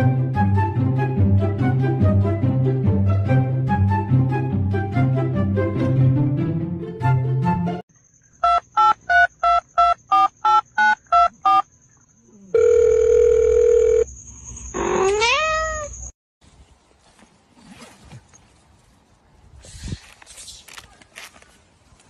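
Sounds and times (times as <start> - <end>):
music: 0.0 - 7.8
telephone keypad beeps: 8.4 - 11.6
cat meowing: 14.9 - 16.0.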